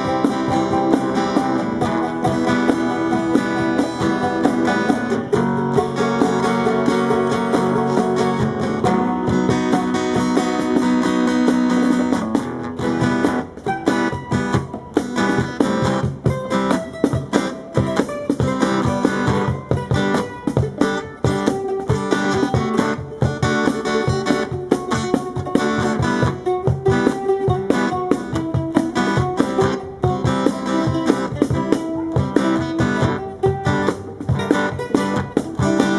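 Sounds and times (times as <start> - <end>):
strummed guitar: 0.0 - 35.9.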